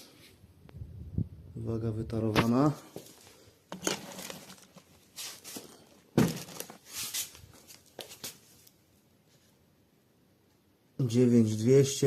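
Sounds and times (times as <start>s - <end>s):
bucket knocks and scrapes: 3.7s - 4.9s, 6.2s - 6.9s
heavy thump: 6.2s - 6.6s.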